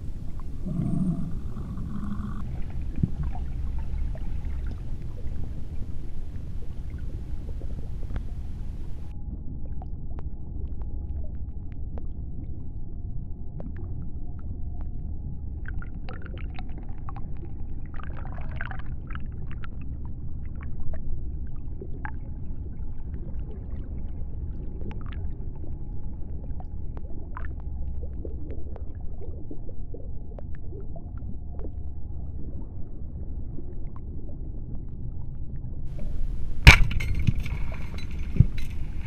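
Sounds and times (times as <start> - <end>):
bubbling water: 0.0 - 9.4
low underwater rumble: 0.0 - 39.0.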